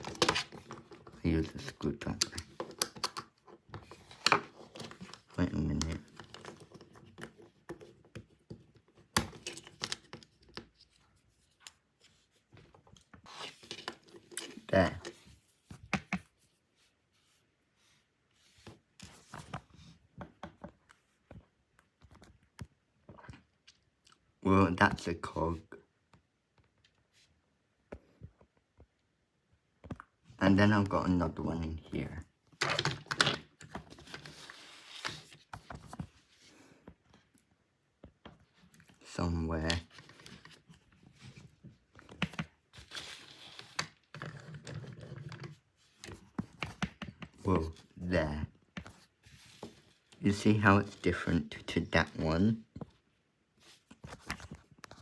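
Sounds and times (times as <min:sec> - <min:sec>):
light scraping of plastic parts: 0:00.0 - 0:16.4, 0:32.0 - 0:37.5, 0:38.1 - 0:55.0.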